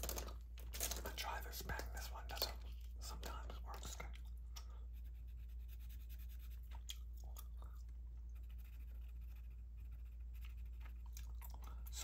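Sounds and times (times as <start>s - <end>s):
steady low hum: 0.1s - 12.0s
gum chewing mouth clicks: 6.7s - 8.0s, 10.8s - 12.0s.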